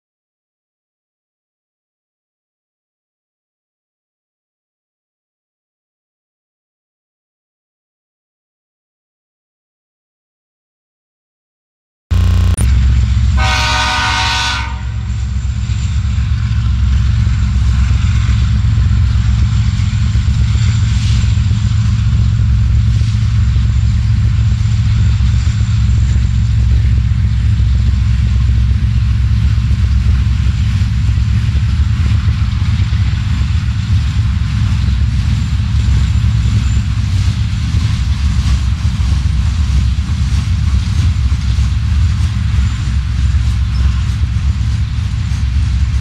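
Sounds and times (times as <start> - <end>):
train air horn chord: 12.1 - 15.2
diesel locomotives rumbling: 12.1 - 46.0.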